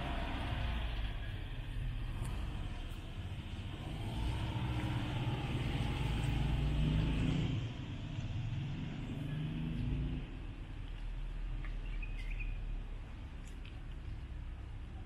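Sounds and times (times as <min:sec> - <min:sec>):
suv engine driving past: 0:00.0 - 0:10.7.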